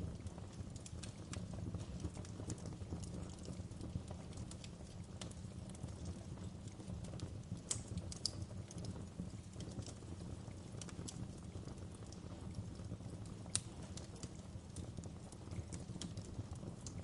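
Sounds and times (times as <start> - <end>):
wood fire crackling: 0.0 - 17.0
sharp pops and snaps: 6.4 - 10.0, 12.9 - 17.0.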